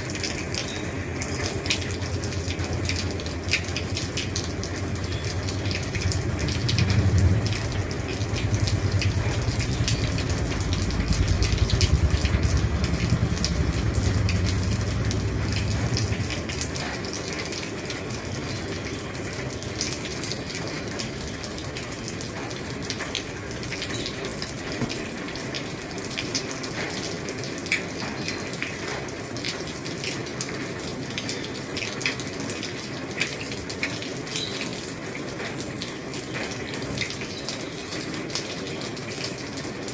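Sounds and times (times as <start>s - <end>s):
heavy rain on a roof: 0.0s - 39.9s
deep rumble: 1.3s - 17.6s.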